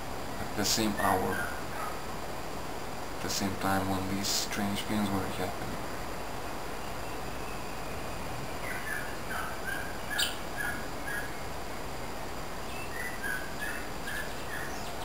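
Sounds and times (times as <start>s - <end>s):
background hiss: 0.0s - 15.0s
bird calling: 0.8s - 2.0s, 6.8s - 11.4s, 12.6s - 15.0s.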